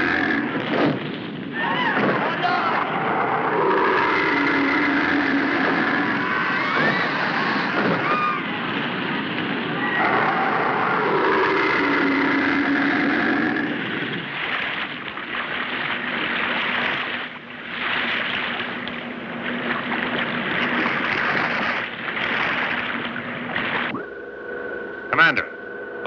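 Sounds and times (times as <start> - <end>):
sea water and surf rushing: 0.0 - 24.2
steady low hum: 11.8 - 26.0.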